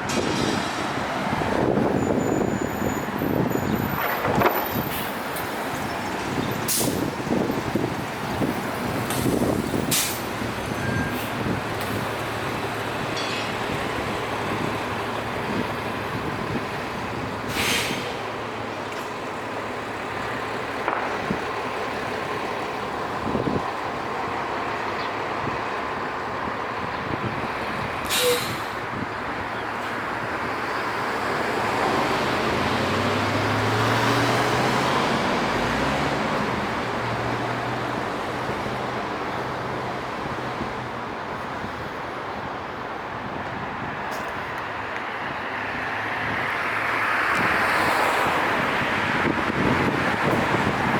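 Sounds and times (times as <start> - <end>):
passing street traffic: 0.0 - 50.9
air brakes hissing: 6.6 - 7.2, 9.1 - 11.4, 17.4 - 18.3, 28.0 - 28.9.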